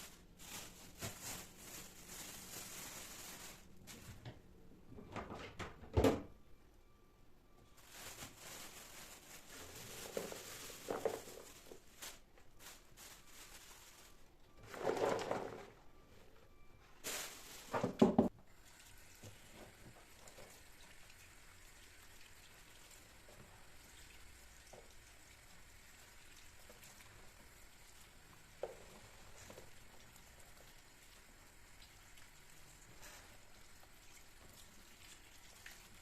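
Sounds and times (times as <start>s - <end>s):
handling noises: 0.0s - 4.4s, 7.7s - 16.0s, 16.6s - 18.3s.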